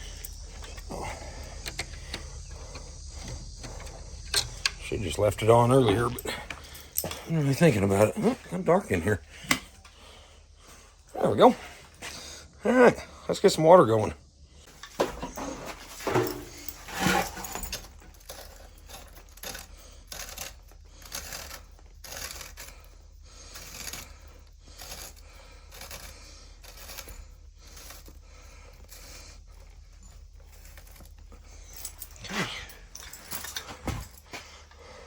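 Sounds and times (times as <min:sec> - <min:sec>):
small metallic clinks: 0:00.0 - 0:10.0, 0:14.7 - 0:34.8.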